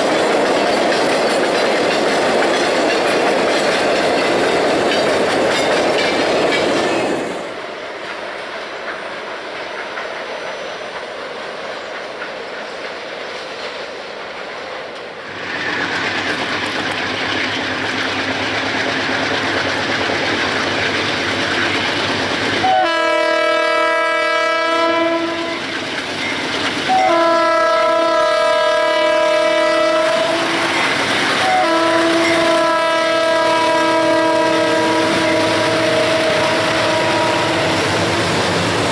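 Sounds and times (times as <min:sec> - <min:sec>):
freight train running: 0:00.0 - 0:38.9
locomotive air horn blasts: 0:22.6 - 0:25.7, 0:26.9 - 0:37.9.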